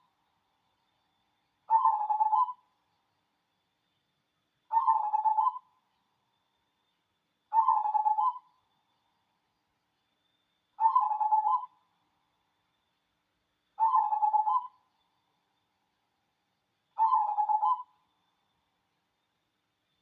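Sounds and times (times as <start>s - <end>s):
dove cooing: 1.7s - 2.6s, 4.7s - 5.6s, 7.5s - 8.4s, 10.8s - 11.7s, 13.8s - 14.7s, 17.0s - 17.9s.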